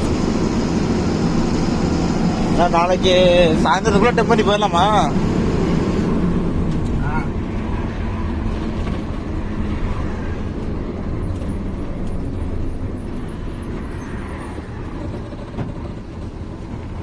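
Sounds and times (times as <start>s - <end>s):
heavy truck engine drone: 0.0s - 17.0s
road and tyre noise: 0.0s - 17.0s.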